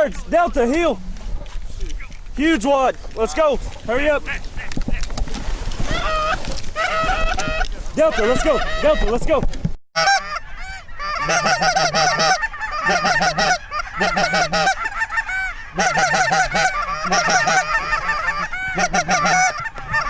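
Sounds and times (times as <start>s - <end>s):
geese honking: 3.2s - 5.2s, 5.8s - 9.3s, 10.0s - 20.0s.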